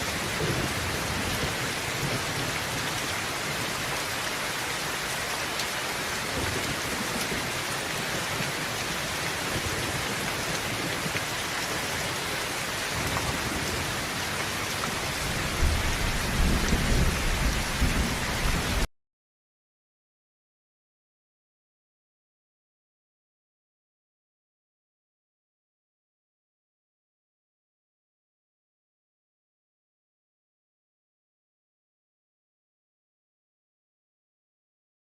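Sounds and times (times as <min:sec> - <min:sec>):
thunder rumbling: 0:00.0 - 0:04.1, 0:12.9 - 0:18.9
heavy rain on a tin roof: 0:00.0 - 0:18.9.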